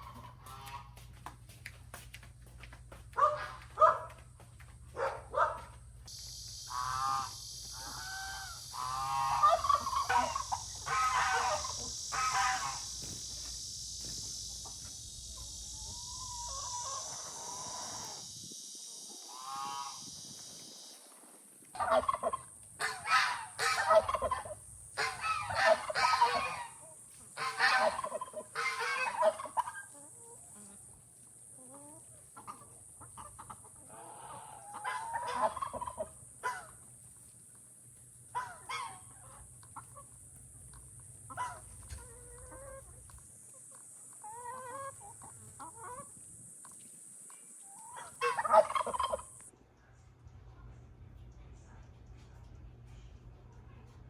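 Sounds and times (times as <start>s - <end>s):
poultry calling: 0.0s - 1.1s, 3.2s - 4.2s, 5.0s - 18.3s, 19.2s - 20.2s, 21.8s - 30.8s, 31.6s - 36.9s, 38.3s - 46.1s, 47.7s - 49.5s
steady high hiss: 6.0s - 33.5s.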